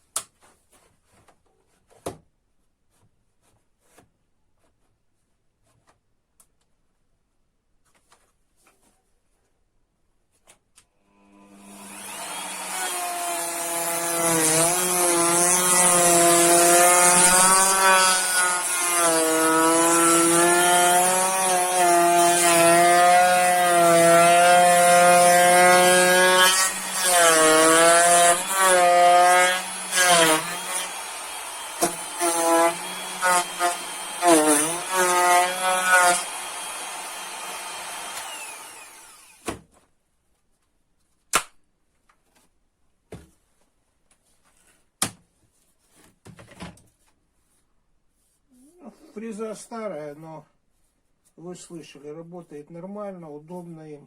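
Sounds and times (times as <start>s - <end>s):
router cutting wood: 11.2s - 39.6s
electric router whining: 11.5s - 19.0s, 19.6s - 39.5s.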